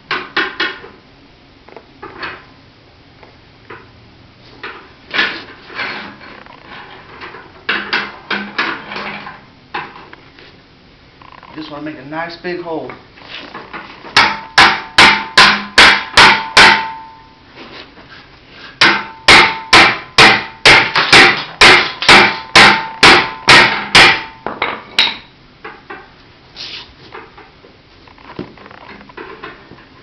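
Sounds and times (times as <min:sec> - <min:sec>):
tire iron hammering sheet metal: 0:14.1 - 0:17.3, 0:18.8 - 0:25.3.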